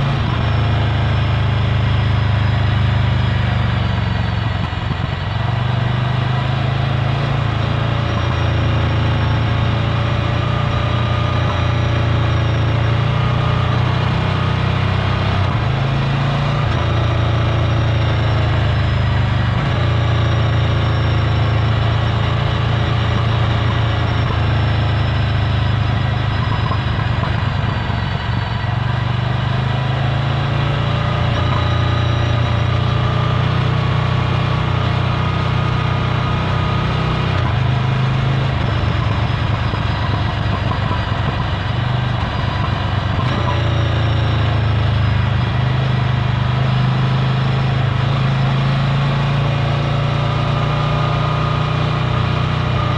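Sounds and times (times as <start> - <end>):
motorcycle engine running at low revs: 0.0 - 52.9.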